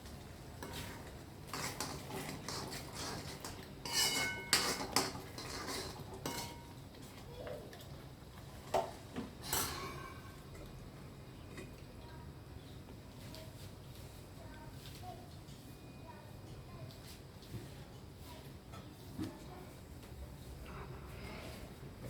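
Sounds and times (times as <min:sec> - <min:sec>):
metal utensils clinking in a pot: 0:00.6 - 0:06.8, 0:08.8 - 0:10.4.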